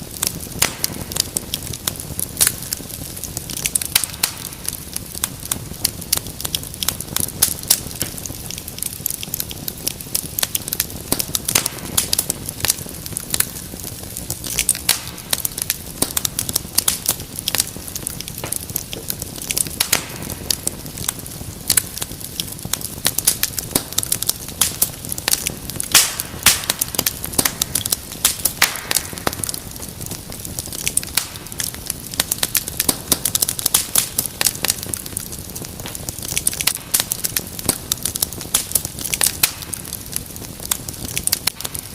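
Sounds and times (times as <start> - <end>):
wood fire crackling: 0.0 - 41.9.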